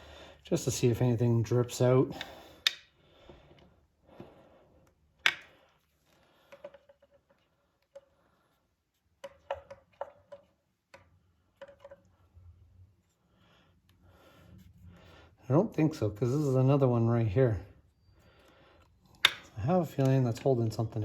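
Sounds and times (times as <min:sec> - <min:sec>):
metal tool clicks and taps: 0:02.1 - 0:02.9, 0:19.1 - 0:20.5.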